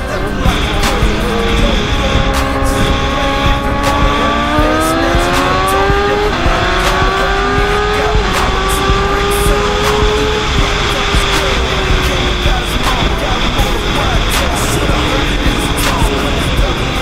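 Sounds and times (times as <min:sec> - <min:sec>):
heavy rushing noise: 0:00.0 - 0:17.0.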